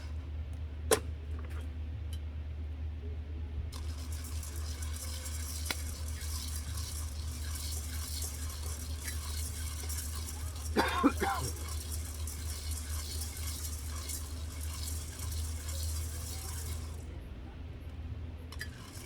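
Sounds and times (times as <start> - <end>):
food sizzling in pan: 3.8 - 17.0.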